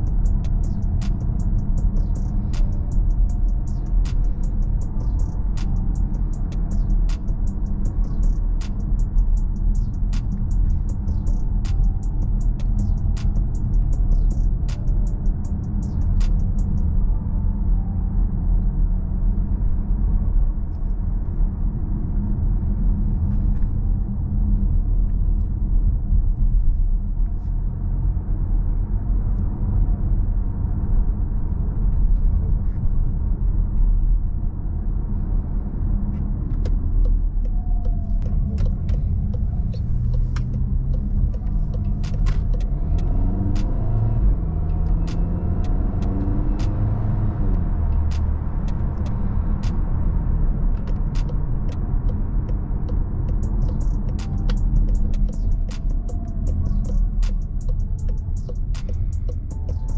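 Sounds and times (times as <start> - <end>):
car engine rumbling: 0.0 - 59.9
light ticks: 36.5 - 44.0, 50.8 - 59.9.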